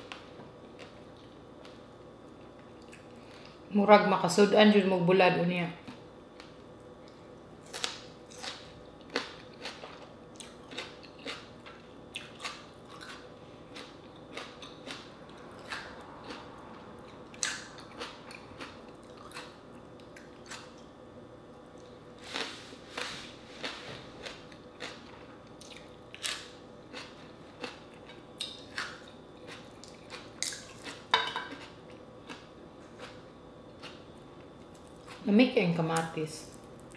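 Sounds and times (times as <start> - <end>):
faint steady hum: 0.0 - 36.9
crunchy chewing: 5.8 - 21.0, 21.7 - 35.3.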